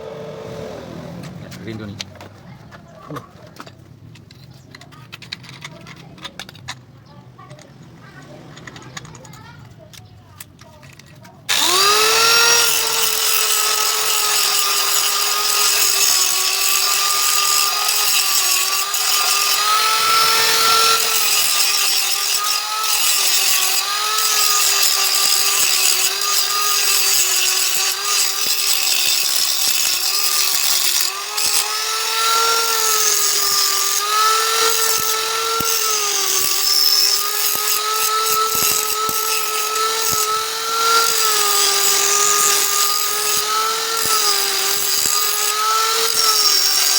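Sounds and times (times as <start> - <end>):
angle grinder on metal: 11.5 - 46.9.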